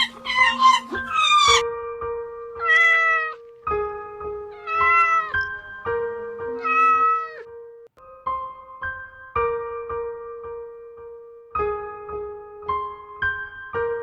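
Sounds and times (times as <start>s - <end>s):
cat meowing: 0.0s - 1.6s, 2.5s - 3.5s, 4.4s - 7.5s
background music: 0.0s - 14.0s.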